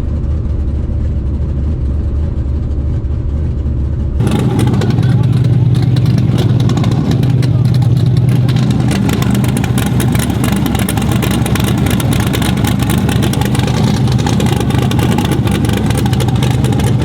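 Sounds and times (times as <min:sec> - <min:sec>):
truck engine running loudly: 0:04.2 - 0:17.0.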